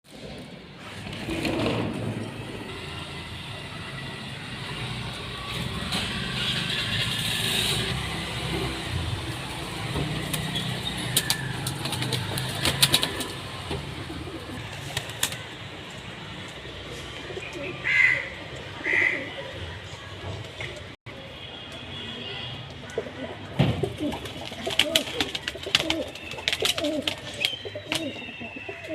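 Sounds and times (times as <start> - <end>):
pigeons cooing: 10.8 - 14.7, 17.1 - 19.6, 23.0 - 28.9.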